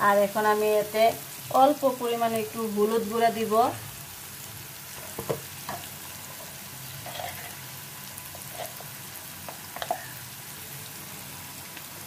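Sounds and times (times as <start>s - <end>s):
onions sizzling in hot oil: 0.0s - 12.0s
wooden spatula knocking pan: 5.0s - 5.9s.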